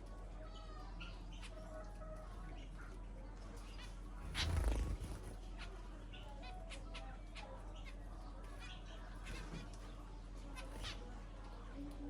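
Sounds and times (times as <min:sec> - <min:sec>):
birds chirping: 0:04.2 - 0:06.3.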